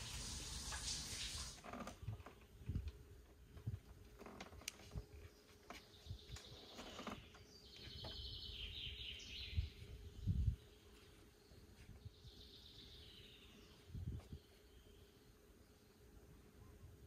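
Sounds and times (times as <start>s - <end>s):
small bird singing trills: 5.2s - 16.0s.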